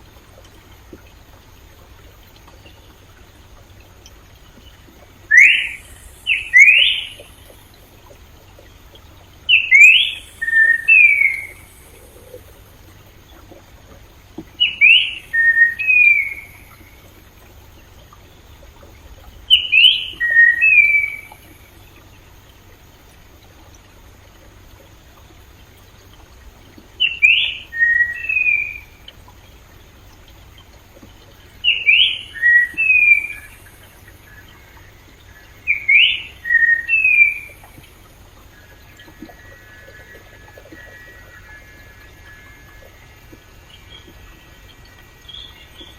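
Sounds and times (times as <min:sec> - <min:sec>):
faint stream flowing: 0:00.0 - 0:45.9
songbird whistling: 0:05.2 - 0:07.3, 0:09.5 - 0:12.4, 0:14.6 - 0:16.9, 0:19.5 - 0:21.5, 0:27.0 - 0:29.0, 0:31.6 - 0:37.7, 0:38.4 - 0:45.9.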